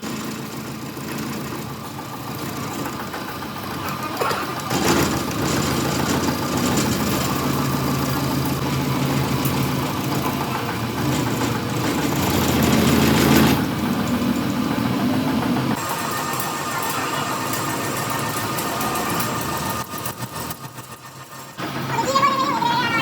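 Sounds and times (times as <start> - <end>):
engine running at low speed: 0.0 - 22.2.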